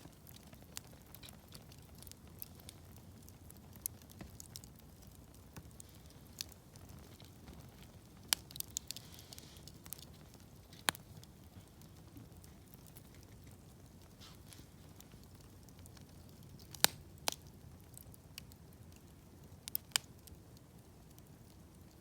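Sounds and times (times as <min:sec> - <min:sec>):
campfire crackling and popping: 0:00.0 - 0:22.0
low rumble of burning fire: 0:00.0 - 0:22.0.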